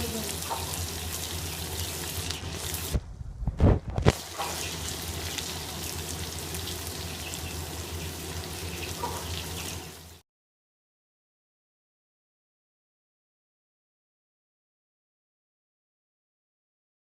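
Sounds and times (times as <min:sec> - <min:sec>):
food sizzling in a pan: 0:00.0 - 0:03.0, 0:04.1 - 0:10.2.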